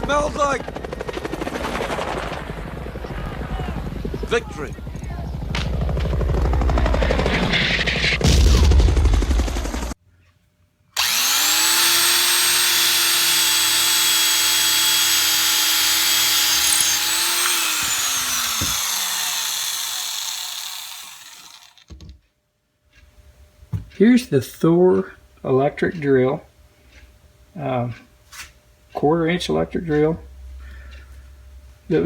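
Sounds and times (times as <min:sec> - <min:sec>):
electric drill whining: 0:11.0 - 0:21.9.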